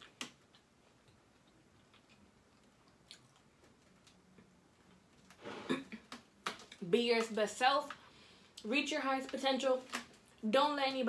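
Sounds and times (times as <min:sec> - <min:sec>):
person chewing food: 0:00.0 - 0:06.6.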